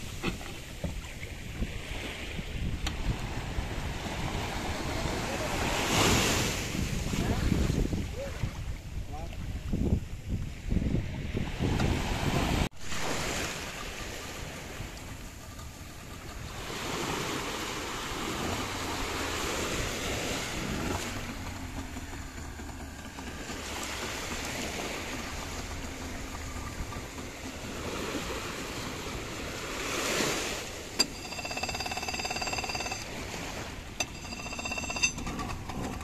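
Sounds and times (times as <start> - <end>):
wind on microphone: 0.0 - 13.7
small waves washing: 11.6 - 34.8.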